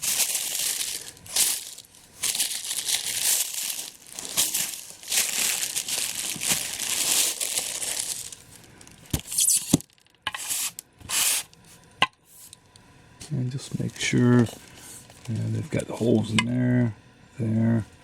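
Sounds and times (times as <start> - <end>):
packaging crinkling and rustling: 0.0 - 11.8, 13.8 - 16.3.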